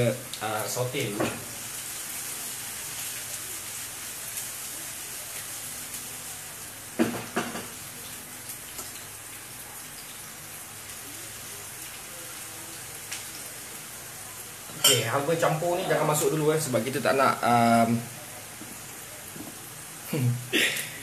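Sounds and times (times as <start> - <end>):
onions sizzling in hot oil: 0.0 - 21.0
pan knocking on burner grate: 7.0 - 7.8.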